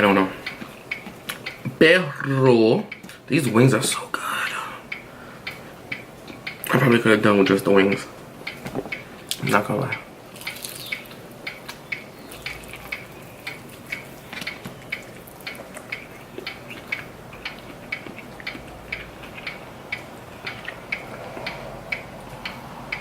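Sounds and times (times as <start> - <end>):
soft mouth clicks: 8.5 - 23.0
chewing chicken wings: 10.3 - 23.0.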